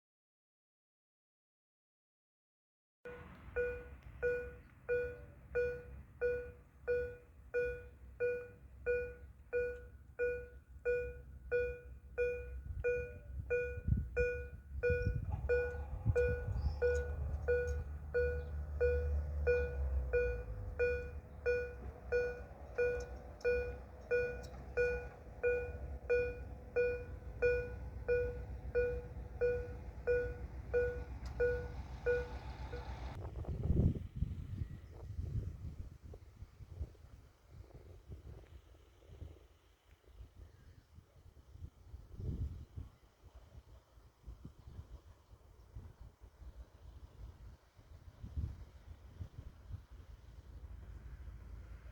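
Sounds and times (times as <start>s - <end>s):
level crossing bell dinging: 3.1s - 32.8s
low engine rumble: 3.1s - 51.9s.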